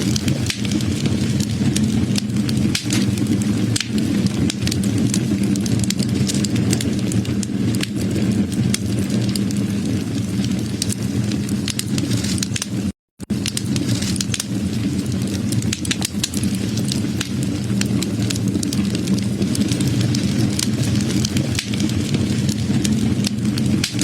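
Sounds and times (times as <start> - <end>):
low rumble: 0.0 - 24.0
wood fire crackling: 0.0 - 24.0.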